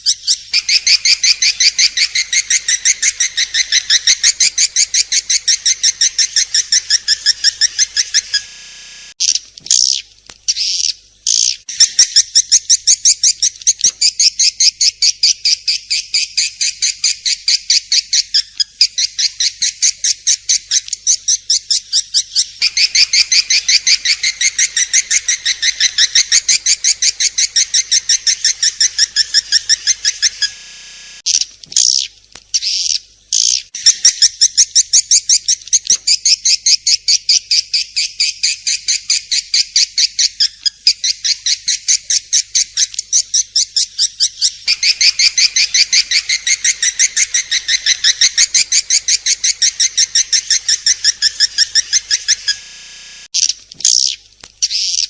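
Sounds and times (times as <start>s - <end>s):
swiftlet high chirps: 22.6s - 31.2s, 44.7s - 53.3s.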